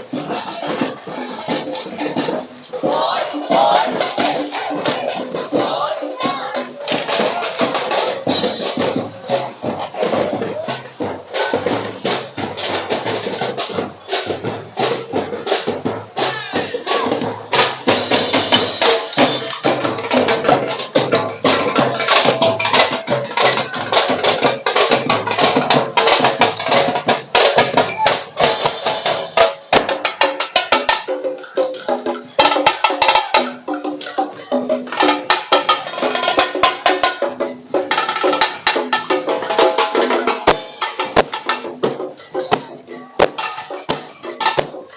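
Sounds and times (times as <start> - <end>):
drums: 0.0 - 44.9
fast parade percussion music: 0.0 - 44.9
sharp wood-block strikes: 17.6 - 44.9.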